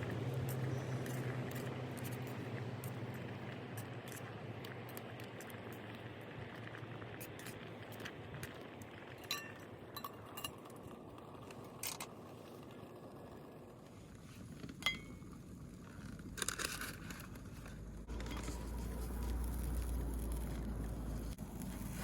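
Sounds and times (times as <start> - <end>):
cookware clinking: 9.2 - 10.6.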